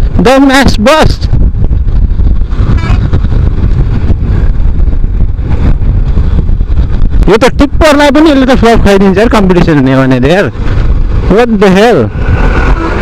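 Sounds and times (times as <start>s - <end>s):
road noise: 0.0s - 13.0s
wind rumbling on microphone: 0.0s - 13.0s
motorcycle engine: 10.4s - 13.0s.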